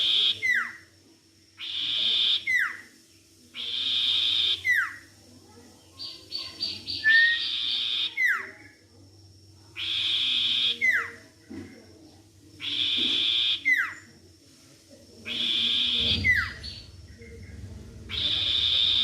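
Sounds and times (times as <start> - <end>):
buzzy bird call with whistle: 1.6 - 2.8, 3.6 - 5.0, 6.9 - 8.4, 9.8 - 11.2, 12.6 - 14.0, 15.3 - 16.9, 18.1 - 19.0.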